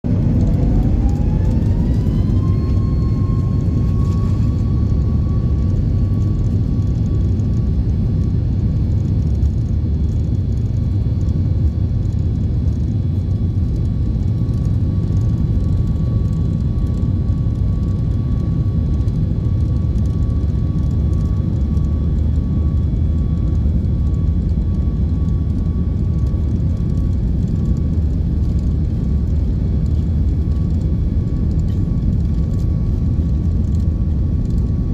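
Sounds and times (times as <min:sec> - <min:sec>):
deep engine rumble: 0:00.0 - 0:34.9
jet engine whine rising: 0:00.1 - 0:34.9.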